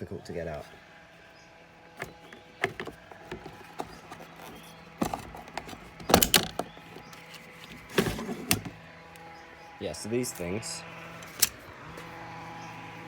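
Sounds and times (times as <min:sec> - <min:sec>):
plastic case clicks and rattles: 0:02.0 - 0:08.8.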